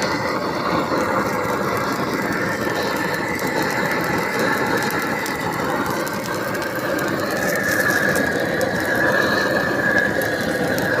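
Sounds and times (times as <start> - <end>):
high squeal: 0.0 - 11.0
machinery rumbling: 0.0 - 11.0.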